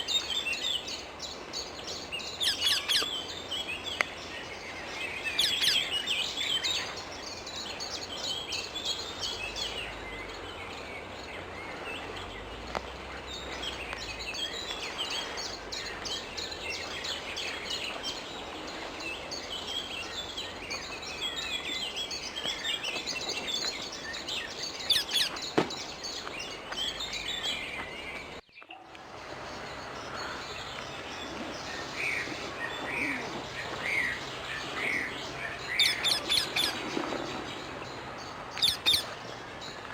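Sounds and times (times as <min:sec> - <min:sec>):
outdoor background noise: 0:00.0 - 0:39.9
parakeets chirping shrilly: 0:02.4 - 0:03.1, 0:24.8 - 0:25.4, 0:35.7 - 0:36.9, 0:38.6 - 0:39.1.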